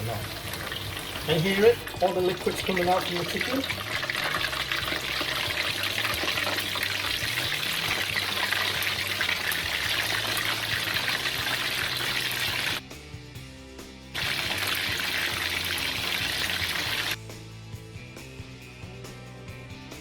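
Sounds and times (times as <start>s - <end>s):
chicken deep-frying in oil: 0.0s - 12.8s, 14.2s - 17.2s.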